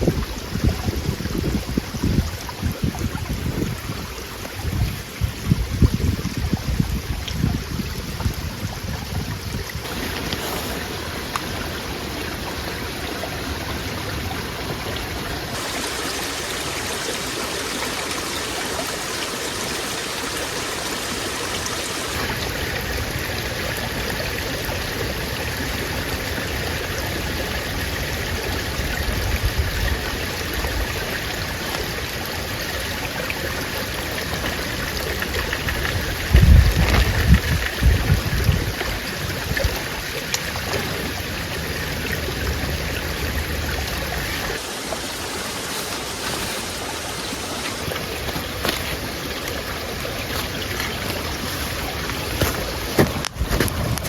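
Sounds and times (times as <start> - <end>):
wind buffeting microphone: 0.0 - 17.2, 33.9 - 39.9.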